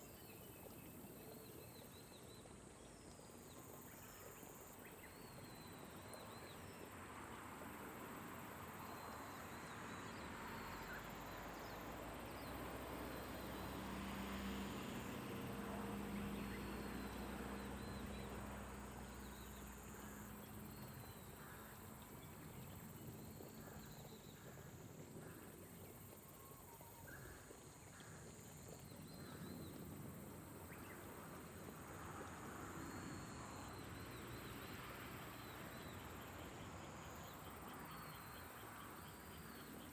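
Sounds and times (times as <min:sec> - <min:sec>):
light rain falling: 0:10.2 - 0:36.4.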